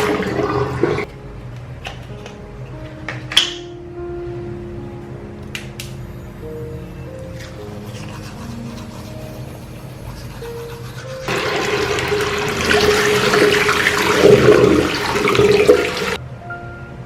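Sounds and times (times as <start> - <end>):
water rushing: 0.0 - 1.1, 11.3 - 16.2
soft background music: 0.0 - 17.0.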